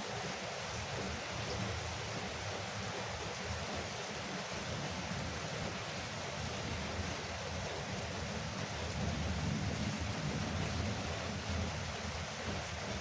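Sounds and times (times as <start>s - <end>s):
rain on a roof: 0.0s - 13.0s.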